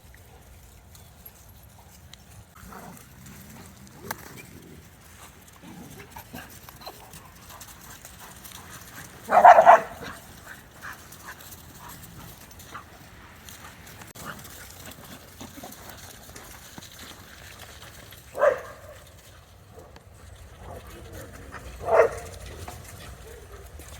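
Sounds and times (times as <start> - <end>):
dog barking: 9.3 - 10.1, 18.4 - 19.0, 21.8 - 22.4.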